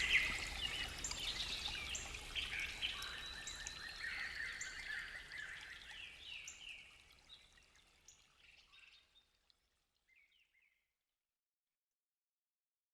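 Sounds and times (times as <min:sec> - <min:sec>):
songbirds calling: 0:00.0 - 0:07.4.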